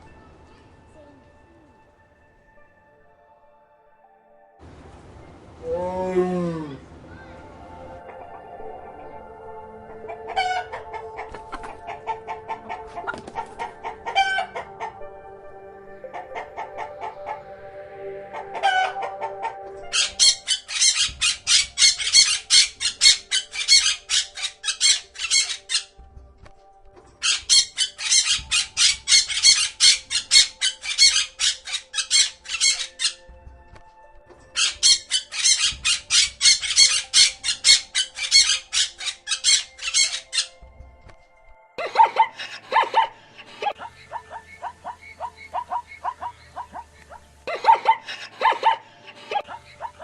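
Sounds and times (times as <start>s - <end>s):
faint background music: 0.0s - 50.0s
fowl squawking: 9.8s - 15.2s, 16.0s - 26.0s, 27.2s - 33.3s, 34.4s - 40.6s, 41.8s - 50.0s.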